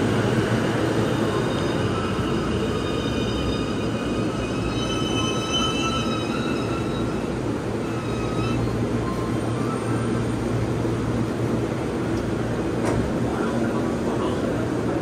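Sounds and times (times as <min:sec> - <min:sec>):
electric train rumbling: 0:00.0 - 0:15.0
brake and wheel squeals: 0:01.2 - 0:10.2.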